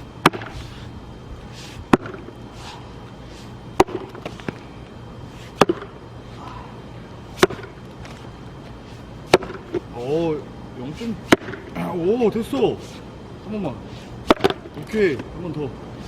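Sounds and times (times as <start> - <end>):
axe striking log: 0.2 - 0.6, 1.9 - 2.3, 3.8 - 4.6, 5.6 - 5.9, 7.4 - 7.8, 9.3 - 9.8, 11.2 - 11.7, 14.2 - 14.7.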